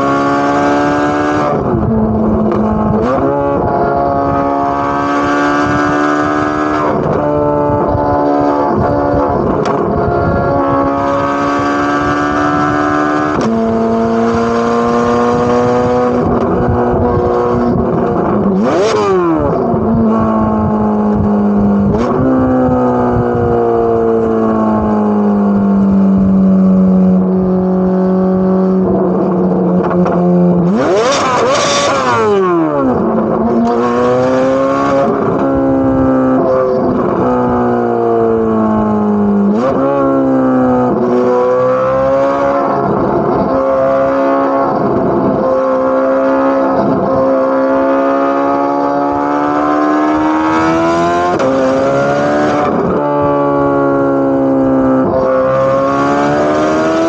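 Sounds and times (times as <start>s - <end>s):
sports car engine shifting gears: 0.0s - 57.0s.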